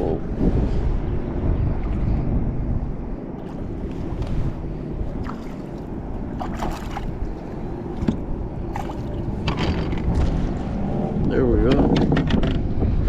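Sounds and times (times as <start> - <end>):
steady low rumble: 0.0 - 13.0
water splashing: 3.4 - 10.2.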